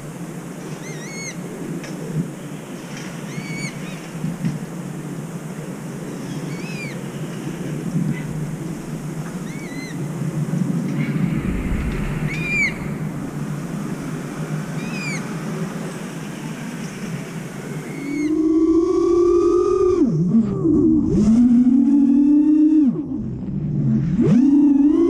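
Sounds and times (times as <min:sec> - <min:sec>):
bird calling: 0:00.7 - 0:01.4, 0:03.2 - 0:04.1, 0:06.1 - 0:10.1, 0:10.9 - 0:13.1, 0:14.7 - 0:15.4, 0:17.8 - 0:18.6
low background rumble: 0:07.7 - 0:17.1.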